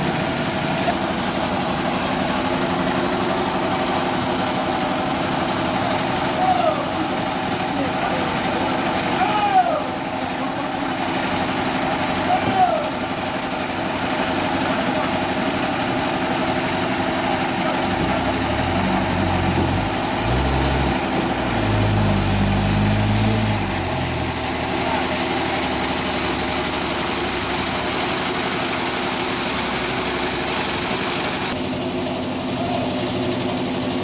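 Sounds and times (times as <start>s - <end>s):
sawmill engine humming: 0.0s - 34.0s
deep shifting low tone: 17.9s - 25.5s.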